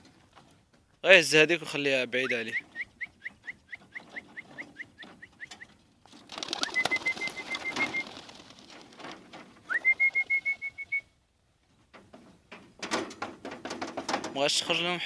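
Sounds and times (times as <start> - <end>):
pigeons chirping: 1.6 - 11.1
flurry of wingbeats: 2.2 - 11.0
high steady whistle: 9.7 - 11.1.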